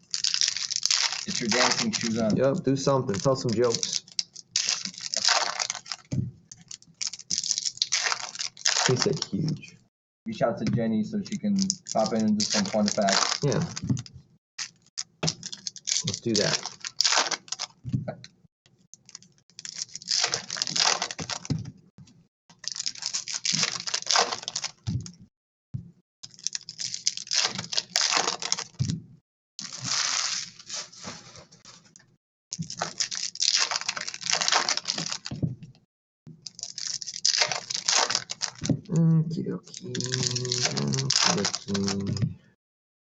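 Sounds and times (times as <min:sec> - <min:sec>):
packaging tearing and crinkling: 0:00.0 - 0:09.5, 0:11.4 - 0:17.8, 0:19.0 - 0:21.6, 0:22.5 - 0:25.2, 0:26.2 - 0:29.0, 0:29.6 - 0:31.9, 0:32.5 - 0:35.4, 0:36.4 - 0:38.8, 0:39.7 - 0:42.2.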